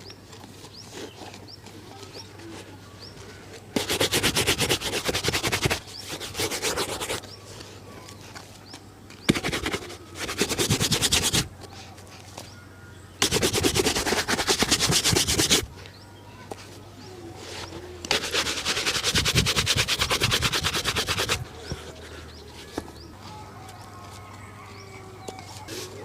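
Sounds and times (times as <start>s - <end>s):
brush scrubbing a shoe: 3.7s - 7.4s, 9.3s - 11.5s, 13.2s - 15.7s, 18.0s - 21.4s.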